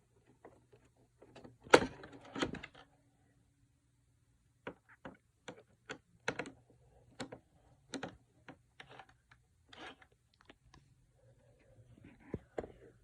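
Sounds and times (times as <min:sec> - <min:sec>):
plastic parts clicking and knocking: 0:04.6 - 0:10.6.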